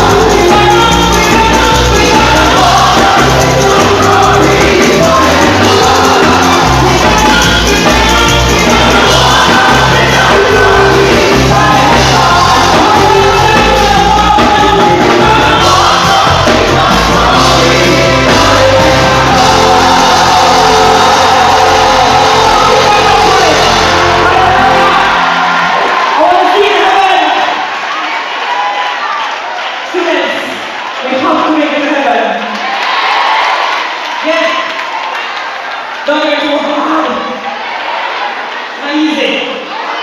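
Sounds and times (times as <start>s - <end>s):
people singing: 0.0s - 26.2s
congregation shouting: 0.0s - 40.0s
gospel band playing: 0.0s - 40.0s.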